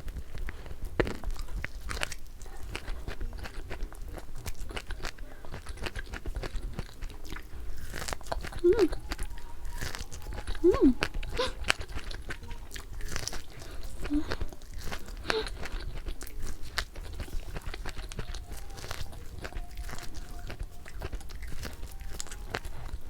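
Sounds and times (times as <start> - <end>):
fried chicken crunching: 0.0 - 23.0
person humming: 8.4 - 12.8, 13.5 - 15.8.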